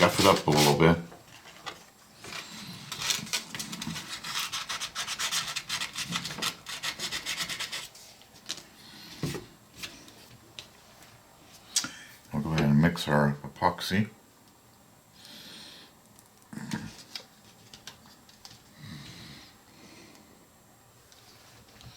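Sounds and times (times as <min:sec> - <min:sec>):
hand sanding scuffing strokes: 0:00.0 - 0:00.9.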